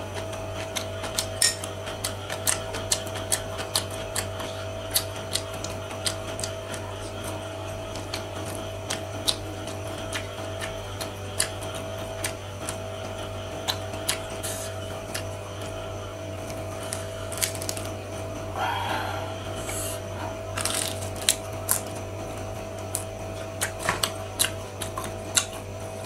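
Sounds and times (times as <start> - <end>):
low electrical hum: 0.0 - 26.0
wet chewing and mouth clicks: 0.1 - 15.8, 16.4 - 18.0, 19.6 - 22.1, 22.8 - 26.0.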